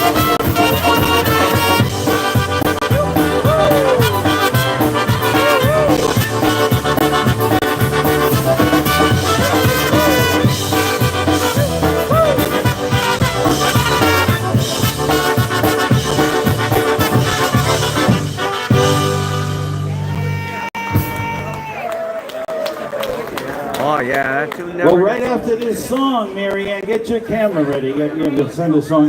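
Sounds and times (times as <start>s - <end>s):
polka band playing: 0.0s - 21.7s.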